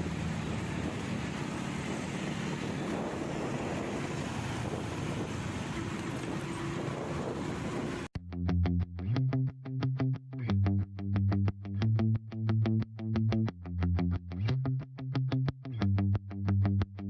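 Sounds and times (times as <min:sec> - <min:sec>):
motorcycle engine running: 0:00.0 - 0:08.1
wind buffeting microphone: 0:00.0 - 0:08.1
plucked electric guitar music: 0:08.2 - 0:17.0.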